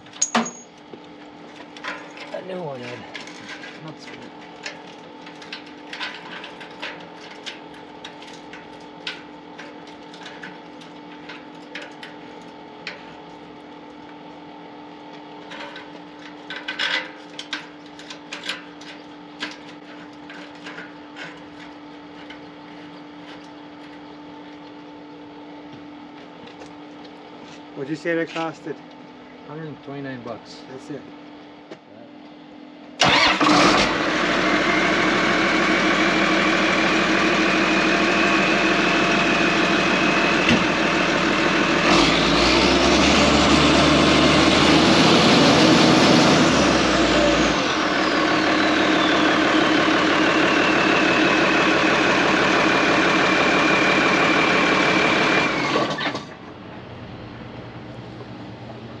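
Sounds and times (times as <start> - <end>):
tractor engine running: 33.0 - 59.0
high whine: 34.6 - 54.4.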